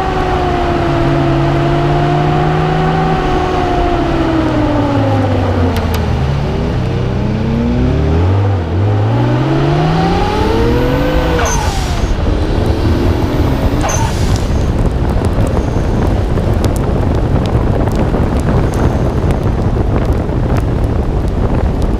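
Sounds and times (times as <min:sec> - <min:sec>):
car engine revving: 0:00.0 - 0:20.2
wind and road noise: 0:00.0 - 0:21.9
blow-off valve hiss: 0:13.8 - 0:14.7.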